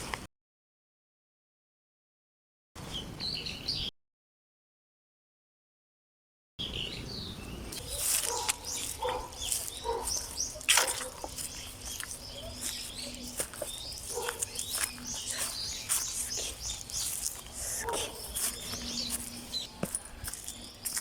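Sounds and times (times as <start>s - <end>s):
small birds chirping: 6.6s - 21.0s.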